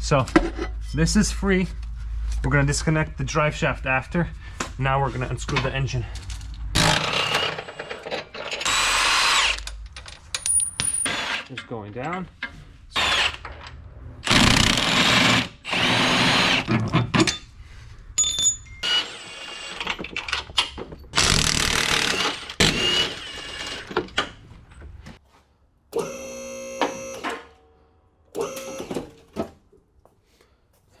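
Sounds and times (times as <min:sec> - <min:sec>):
power wrench running: 0:21.2 - 0:23.8, 0:26.0 - 0:27.4, 0:28.4 - 0:29.2.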